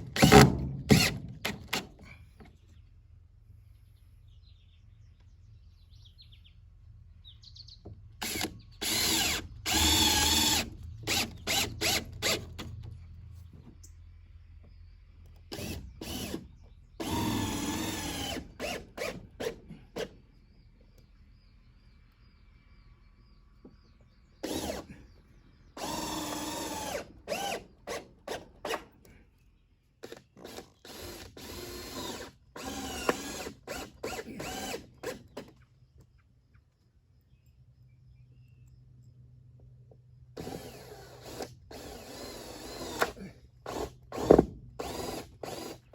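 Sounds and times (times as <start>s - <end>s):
power drill driving screws: 0.0s - 2.0s, 8.2s - 12.7s, 15.5s - 20.1s, 24.4s - 24.9s, 25.8s - 28.9s, 30.0s - 35.5s, 40.4s - 45.9s.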